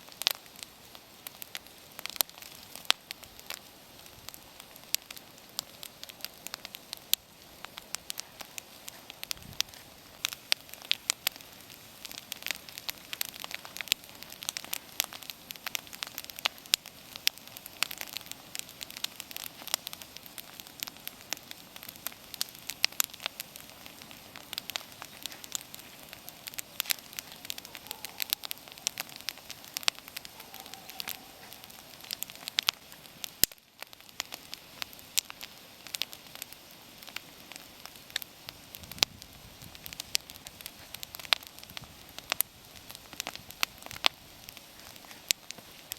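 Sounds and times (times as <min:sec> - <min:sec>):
campfire crackling and popping: 0:00.0 - 0:45.9
faint steady hiss: 0:00.0 - 0:45.9.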